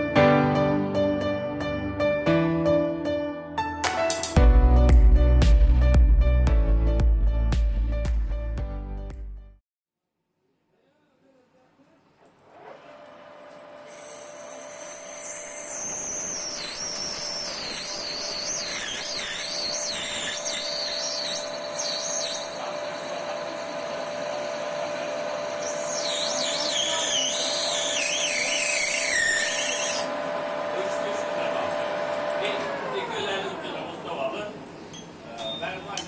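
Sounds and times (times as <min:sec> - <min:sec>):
electric motor whining: 0:12.4 - 0:34.2.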